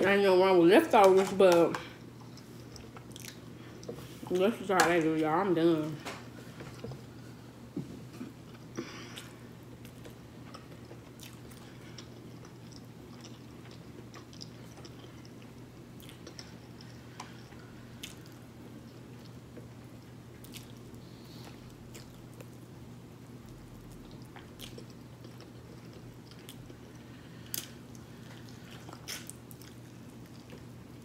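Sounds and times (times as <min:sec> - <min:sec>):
person chewing meat: 0:02.0 - 0:04.1, 0:08.2 - 0:22.7, 0:23.3 - 0:31.0.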